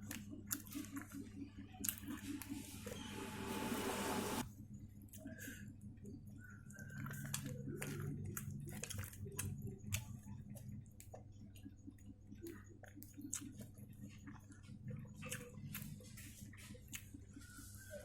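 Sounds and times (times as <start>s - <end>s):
chewing with wet mouth clicks: 0.0s - 2.4s, 6.4s - 17.4s
low steady hum: 0.0s - 17.8s.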